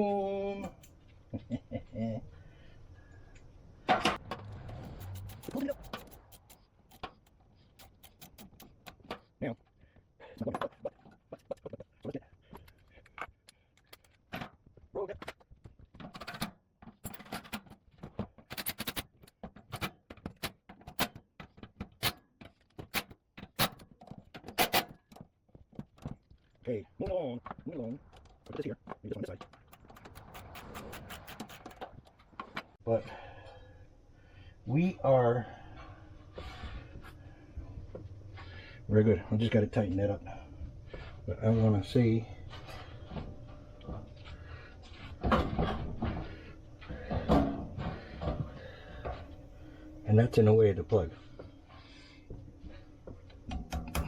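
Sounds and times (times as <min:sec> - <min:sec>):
hardware knocking and rattling: 0:03.9 - 0:09.3, 0:12.6 - 0:26.3, 0:27.5 - 0:32.8
metal parts and tools clicking: 0:04.1 - 0:09.3, 0:10.4 - 0:14.5, 0:16.0 - 0:25.2, 0:28.1 - 0:32.8.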